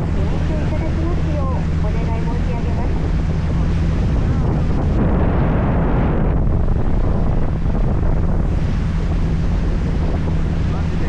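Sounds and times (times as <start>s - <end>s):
boat engine humming: 0.0s - 11.0s
rushing water: 0.0s - 11.0s
wind on microphone: 0.0s - 11.0s.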